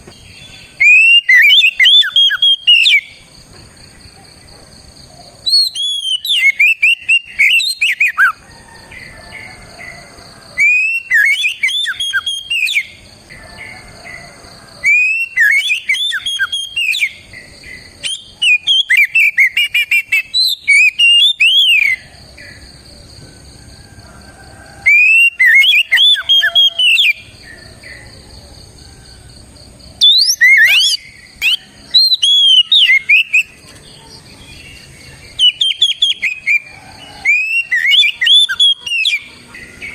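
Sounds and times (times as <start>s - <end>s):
bird singing whistled notes: 0.1s - 3.2s, 5.5s - 8.4s, 10.6s - 13.0s, 14.8s - 22.1s, 24.9s - 27.3s, 30.0s - 33.6s, 34.5s - 39.9s.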